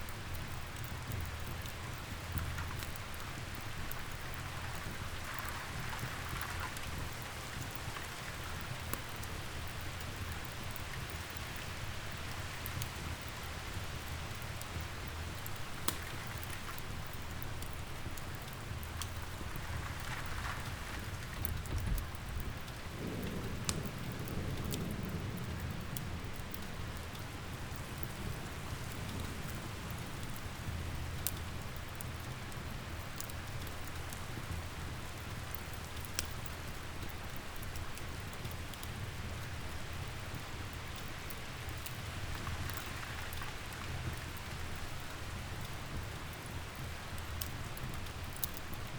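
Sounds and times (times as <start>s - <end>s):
wood fire crackling: 0.0s - 48.9s
rain hissing: 18.6s - 31.6s
low roll of thunder: 19.5s - 31.1s.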